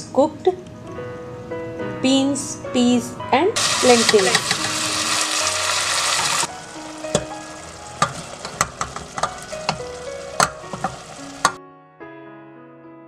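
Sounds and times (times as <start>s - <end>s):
utensils clinking against pan: 3.6s - 5.4s, 8.0s - 11.6s
beans sizzling in hot oil: 3.6s - 11.6s
frying hiss: 3.6s - 11.6s.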